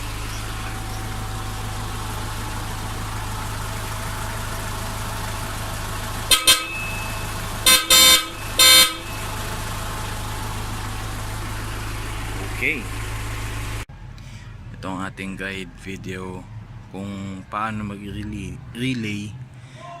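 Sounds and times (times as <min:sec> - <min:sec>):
van engine idling: 0:00.0 - 0:20.0
twin-tone car horn blasts: 0:06.2 - 0:09.6.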